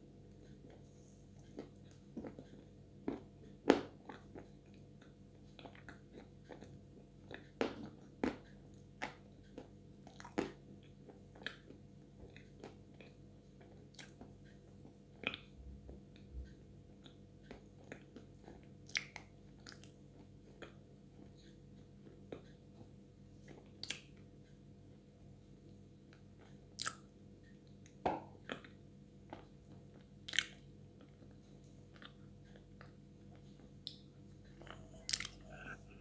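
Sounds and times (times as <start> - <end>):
wet mouth clicks and smacks: 18.9 - 19.9, 23.8 - 24.1, 26.8 - 27.1, 30.3 - 30.6, 35.0 - 35.8.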